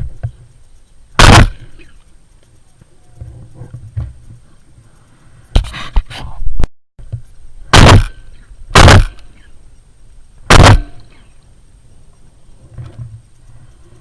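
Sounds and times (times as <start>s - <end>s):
shotgun shots: 1.2s - 1.8s, 7.7s - 9.3s, 10.5s - 11.2s.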